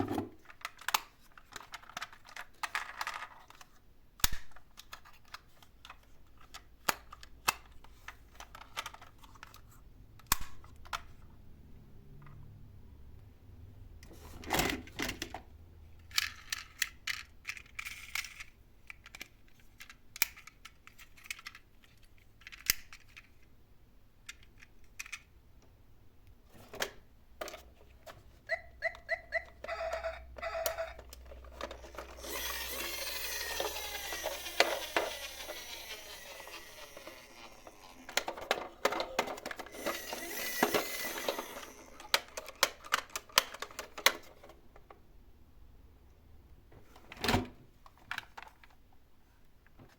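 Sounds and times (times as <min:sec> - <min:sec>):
toy cars clicking and knocking: 0:00.1 - 0:11.2, 0:16.0 - 0:23.5, 0:24.2 - 0:25.3, 0:28.5 - 0:44.6
toy car rattling down slope: 0:28.5 - 0:44.2.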